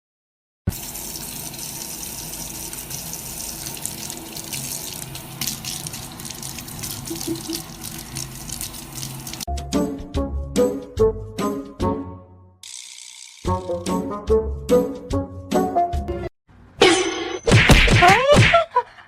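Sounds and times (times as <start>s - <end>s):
water running: 0.7s - 9.5s.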